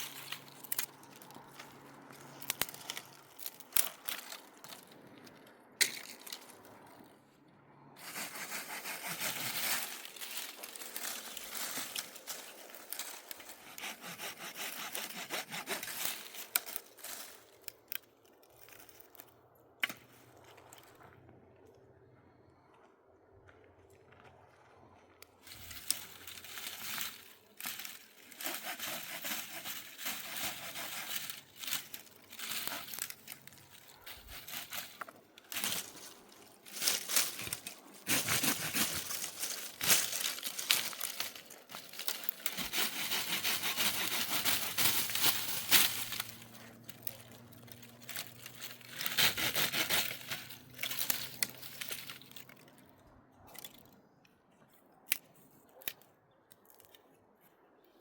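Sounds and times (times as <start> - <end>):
crinkling and rustling: 0.0 - 7.1, 8.0 - 13.8, 25.4 - 54.0.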